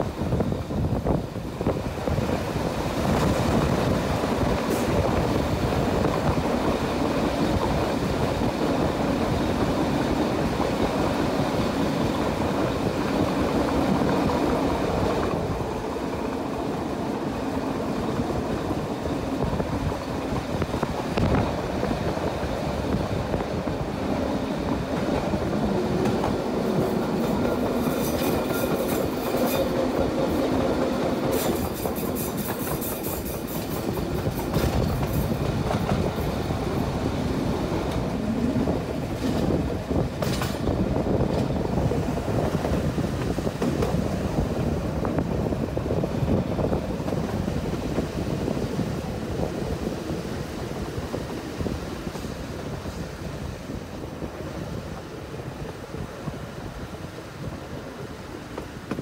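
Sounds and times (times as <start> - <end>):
wheel and rail noise: 0.0 - 59.0
wheels clacking over rail joints: 1.6 - 46.0.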